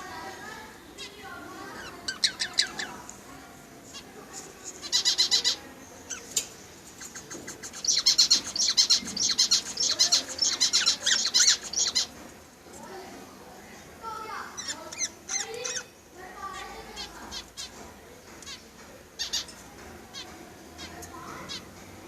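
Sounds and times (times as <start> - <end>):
budgerigars chirping: 1.7 - 3.0, 4.8 - 12.2, 14.6 - 15.9, 19.2 - 21.7.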